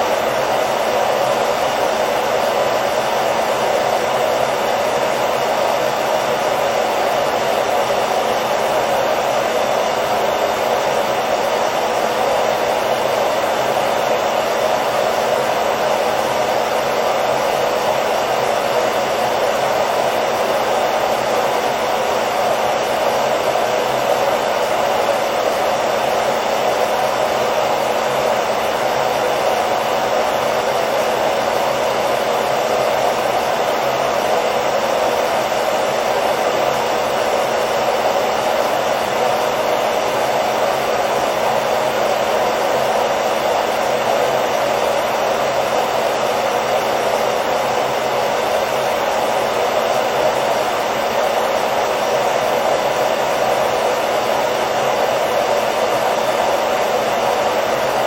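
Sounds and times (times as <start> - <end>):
hair dryer blowing: 0.0 - 58.0.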